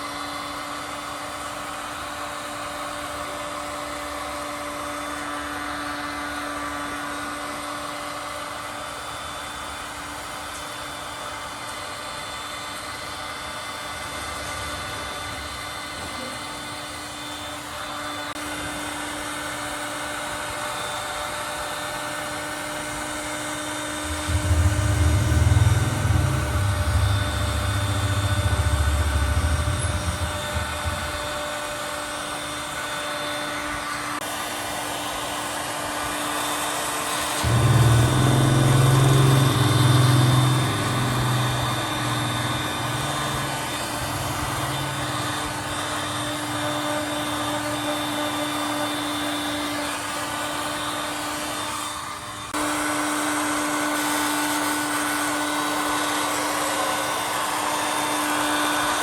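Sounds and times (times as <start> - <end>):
electric blower motor whining: 0.0 - 59.0
low rumble: 24.0 - 31.7.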